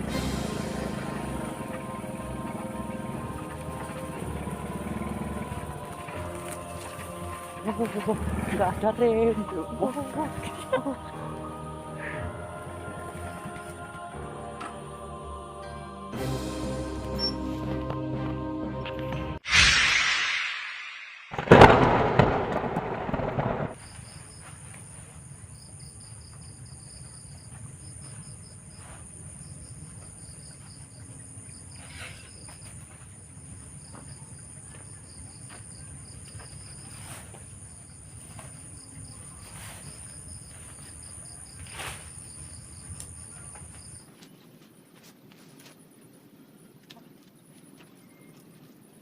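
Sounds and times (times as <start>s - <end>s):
low rumble: 0.0s - 10.4s, 19.4s - 23.8s
crickets chirping: 0.0s - 14.2s, 21.4s - 44.9s
loud noisy burst: 19.4s - 23.8s.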